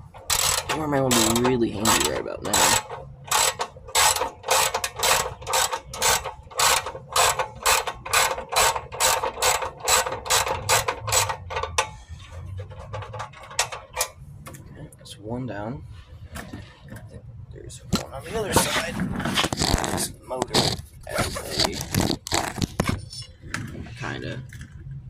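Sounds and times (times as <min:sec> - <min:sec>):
ratchet wrench clicking: 0:00.2 - 0:12.3.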